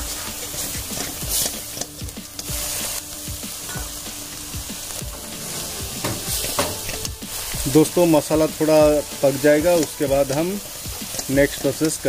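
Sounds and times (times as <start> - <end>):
paste sizzling in hot oil: 0.0 - 12.0
metal spatula scraping pan: 5.0 - 8.0.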